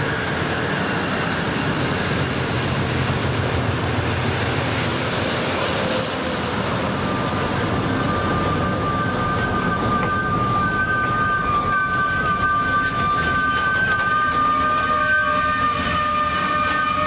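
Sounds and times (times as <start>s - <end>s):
train wheels on track: 0.0s - 17.0s.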